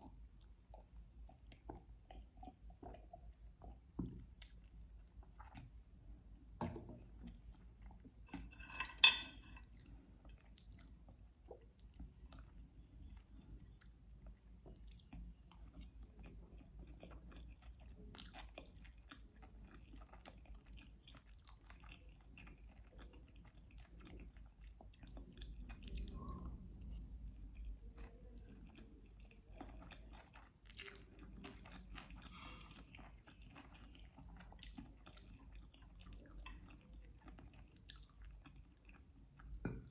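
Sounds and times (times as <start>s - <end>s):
person chewing food: 0.0s - 5.9s, 7.0s - 39.9s.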